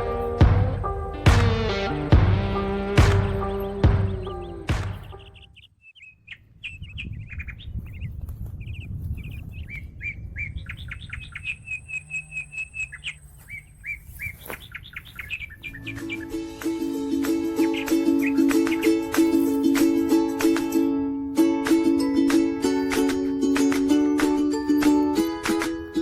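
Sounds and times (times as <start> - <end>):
small birds chirping: 3.0 - 20.2.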